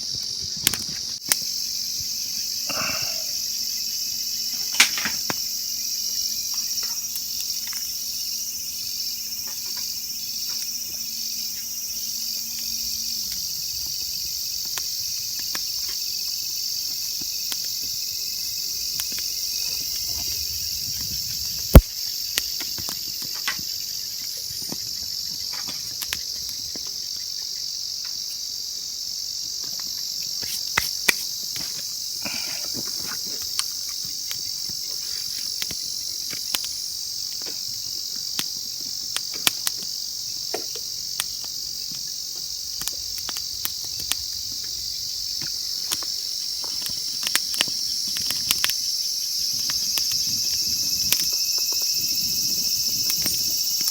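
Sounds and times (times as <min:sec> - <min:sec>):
insects chirring: 0:00.0 - 0:53.9
small ticks: 0:29.7 - 0:53.9.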